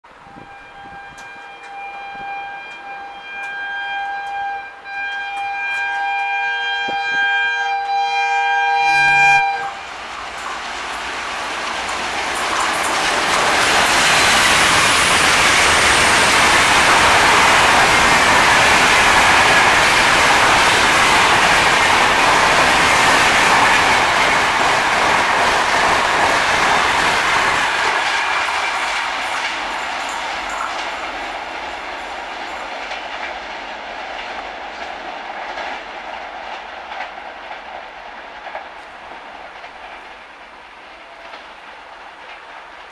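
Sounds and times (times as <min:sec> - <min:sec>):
train engine rushing past: 0:00.1 - 0:42.9
locomotive horn blast: 0:00.2 - 0:10.0
wheels clattering over rails: 0:09.9 - 0:40.2.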